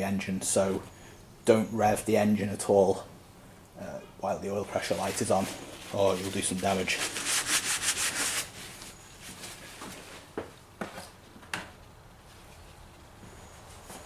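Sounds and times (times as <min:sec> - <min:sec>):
brisk rubbing strokes: 0:04.6 - 0:09.0.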